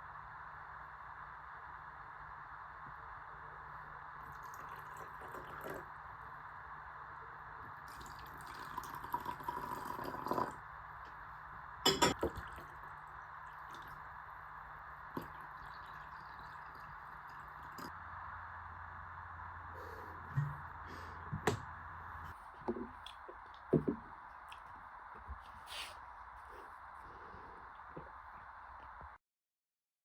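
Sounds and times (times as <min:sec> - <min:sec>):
liquid pouring into vessel: 0:04.2 - 0:05.9, 0:07.8 - 0:10.6, 0:11.9 - 0:14.1, 0:15.1 - 0:18.0.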